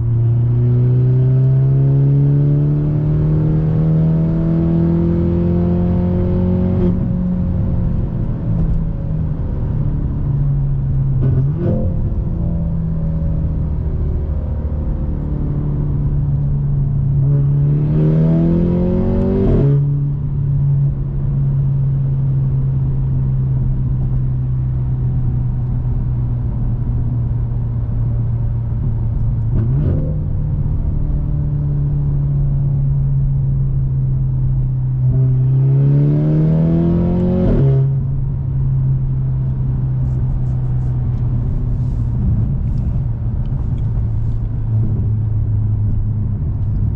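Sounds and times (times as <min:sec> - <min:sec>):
car exhaust droning: 0:37.8 - 0:46.9.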